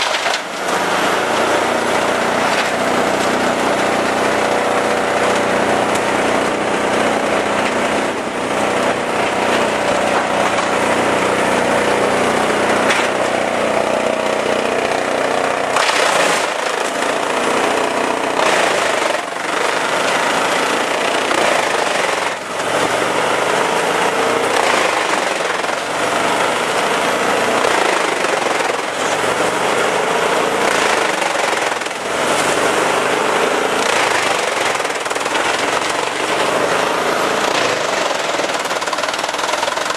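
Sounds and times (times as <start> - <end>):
chainsaw engine at high revs: 0.0 - 39.9.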